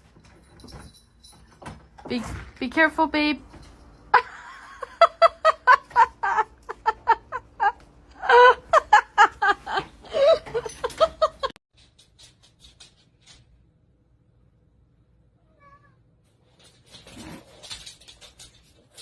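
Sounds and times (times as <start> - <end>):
person laughing hard: 4.2 - 11.5.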